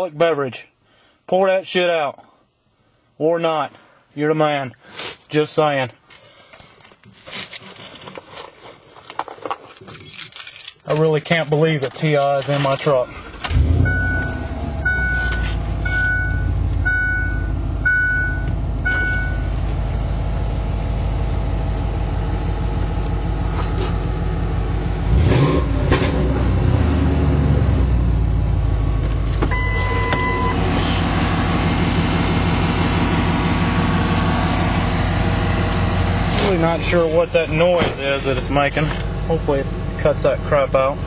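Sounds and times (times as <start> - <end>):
engine revving: 13.2 - 17.1, 20.1 - 28.9, 29.7 - 37.4
pickup engine running: 13.2 - 41.0
dashboard warning chime: 13.8 - 19.6, 29.5 - 30.7
long beep: 13.8 - 19.6, 29.5 - 30.7.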